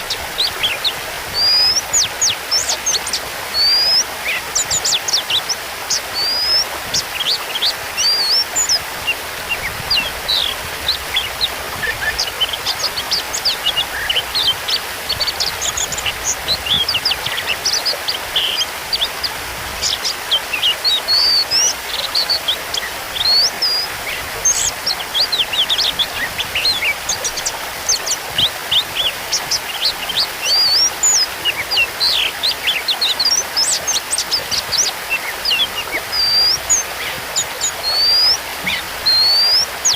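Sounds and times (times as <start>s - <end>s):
bird singing varied chirps: 0.0s - 39.9s.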